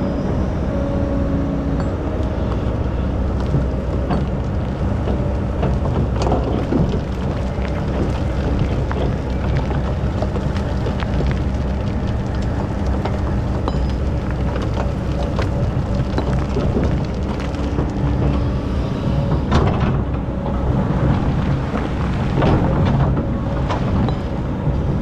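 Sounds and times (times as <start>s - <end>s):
excavator diesel engine running: 0.0s - 25.0s
knocks and rattles: 3.3s - 18.5s.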